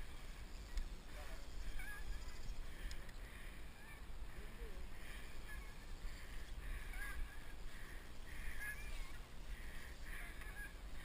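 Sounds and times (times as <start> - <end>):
low wind rumble: 0.0 - 11.0
faint high chirps: 10.1 - 10.9.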